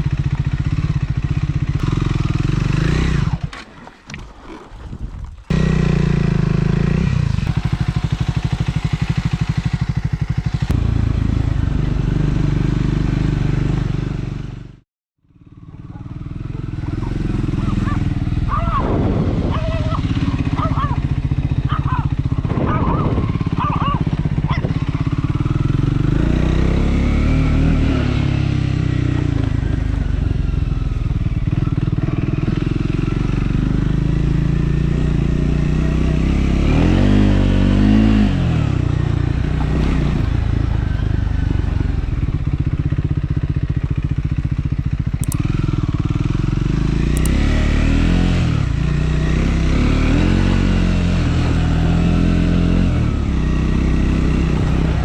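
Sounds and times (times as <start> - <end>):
motorcycle engine running: 0.0 - 3.6, 5.4 - 55.0
short sharp clicks: 45.2 - 45.6, 47.2 - 47.5.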